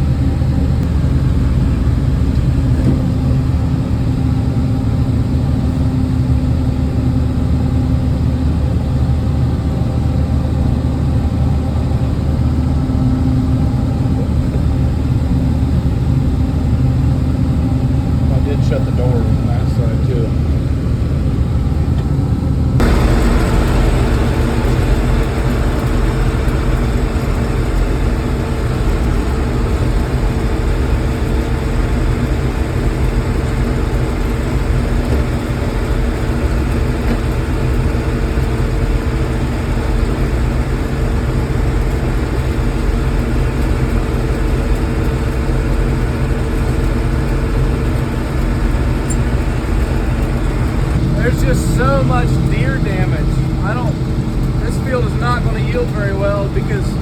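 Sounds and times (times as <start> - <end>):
combine engine drone: 0.0 - 57.0.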